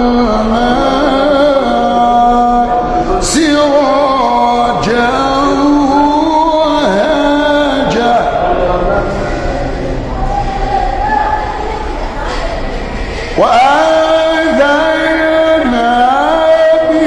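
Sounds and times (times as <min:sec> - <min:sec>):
man chanting melodically: 0:00.0 - 0:10.2, 0:13.3 - 0:17.0.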